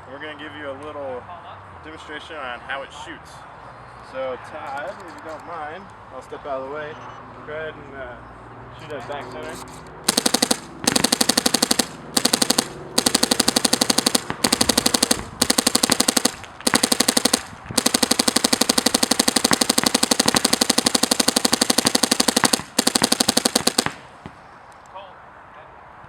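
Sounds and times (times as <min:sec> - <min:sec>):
paintball marker rapid firing: 0:10.1 - 0:24.4.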